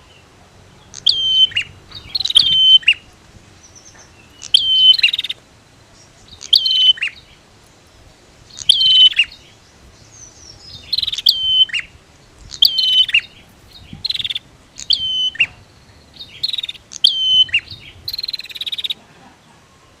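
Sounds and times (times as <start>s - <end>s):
birds chattering calls: 0.0s - 20.0s.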